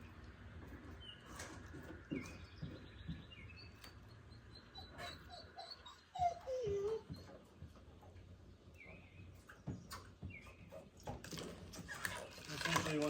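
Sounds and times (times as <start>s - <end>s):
small birds chirping: 0.0s - 11.3s.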